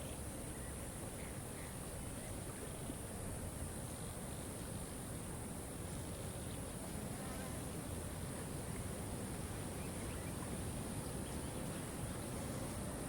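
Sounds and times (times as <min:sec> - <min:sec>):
insect buzzing: 0:05.8 - 0:08.2.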